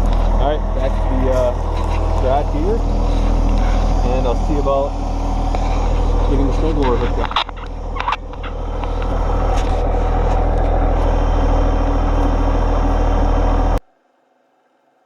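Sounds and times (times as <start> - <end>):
tractor diesel engine running: 0.0 - 13.8.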